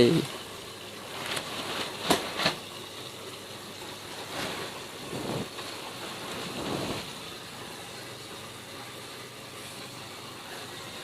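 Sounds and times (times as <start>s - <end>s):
wind rustling plastic sheeting: 1.0s - 2.7s, 4.1s - 7.3s.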